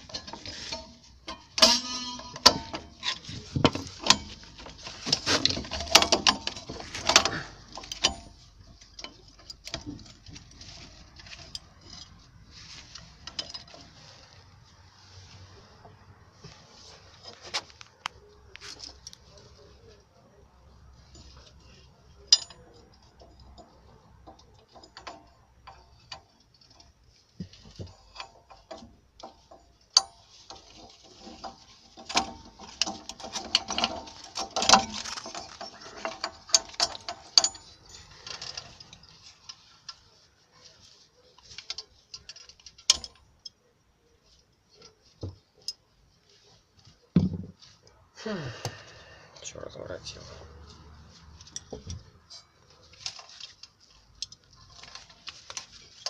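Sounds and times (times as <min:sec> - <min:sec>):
metallic clicks and rattling: 0:00.0 - 0:14.6, 0:20.7 - 0:48.0, 0:49.4 - 0:56.0
ringing metal: 0:00.1 - 0:09.2.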